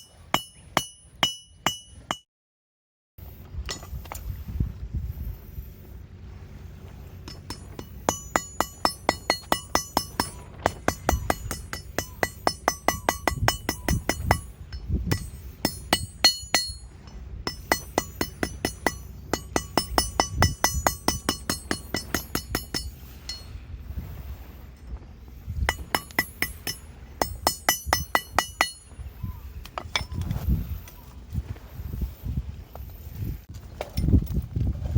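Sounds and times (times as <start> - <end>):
hammer striking steel on anvil: 0.0 - 2.3, 7.3 - 23.5, 25.7 - 29.0.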